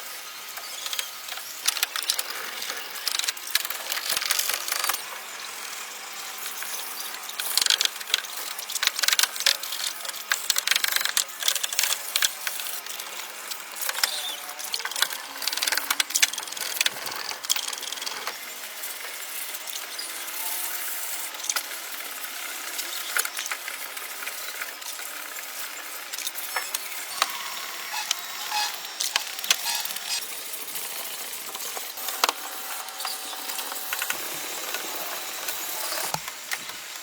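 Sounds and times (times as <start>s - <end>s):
mechanical clicks and rattling: 0.8s - 5.0s, 7.2s - 18.4s.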